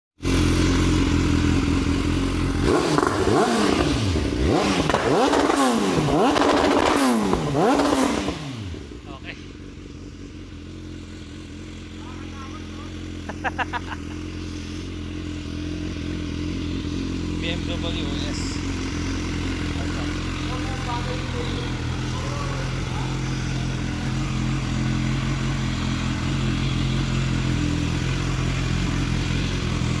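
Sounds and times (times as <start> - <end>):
motorcycle engine revving: 0.2 - 30.0.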